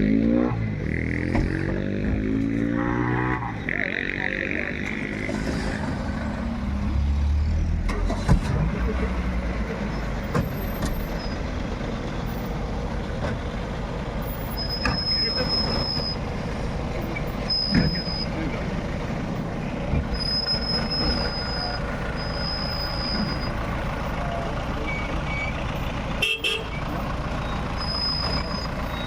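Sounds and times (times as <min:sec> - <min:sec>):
street noise: 0:00.0 - 0:29.0
vehicle engines running: 0:00.0 - 0:29.0.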